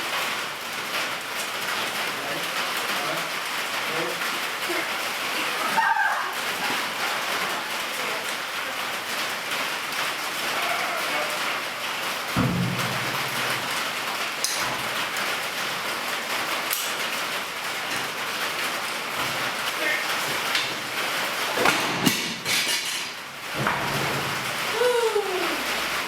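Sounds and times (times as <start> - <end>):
low thud: 12.4 - 14.0.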